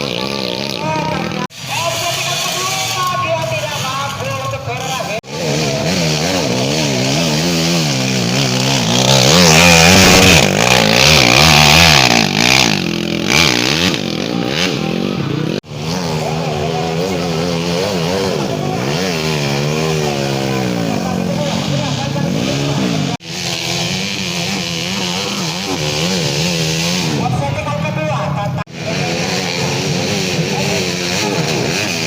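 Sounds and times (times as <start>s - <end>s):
motorcycle engines revving: 0.0s - 32.0s.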